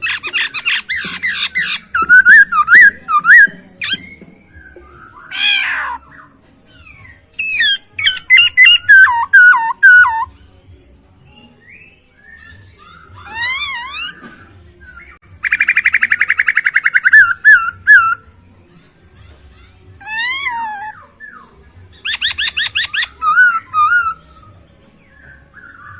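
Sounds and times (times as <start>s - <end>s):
songbird whistling: 0.1s - 10.5s, 11.3s - 18.2s, 20.0s - 25.9s
harsh falling bird call: 5.2s - 6.0s.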